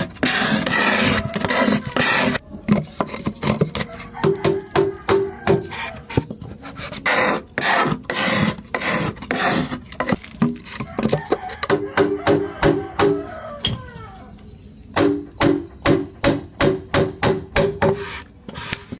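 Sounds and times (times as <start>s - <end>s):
rough scraping: 0.0s - 4.7s, 5.4s - 11.6s, 17.8s - 18.9s
hand tools knocking on wood: 2.7s - 6.3s, 10.4s - 13.8s, 15.0s - 18.0s.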